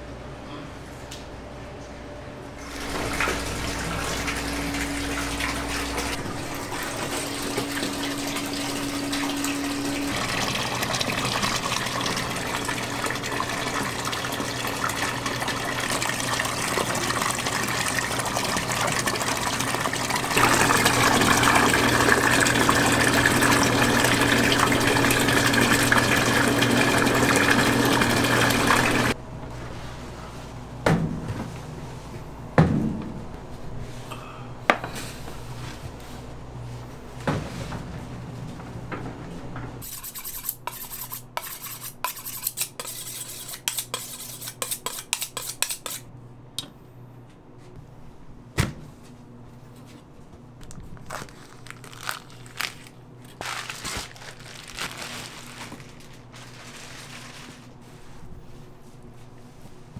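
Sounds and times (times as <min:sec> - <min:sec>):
tap water running: 0:02.6 - 0:29.2.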